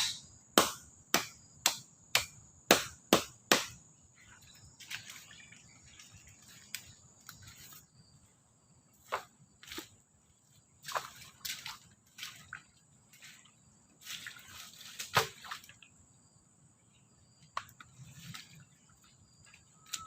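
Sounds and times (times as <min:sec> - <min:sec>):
sharp strikes on wood: 0:00.0 - 0:03.8.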